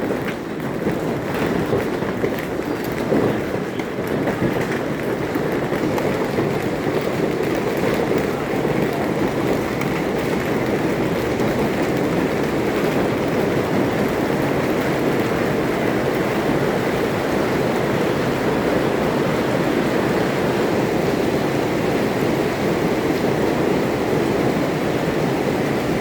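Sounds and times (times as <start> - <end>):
hail and heavy rain pounding: 0.0 - 26.0.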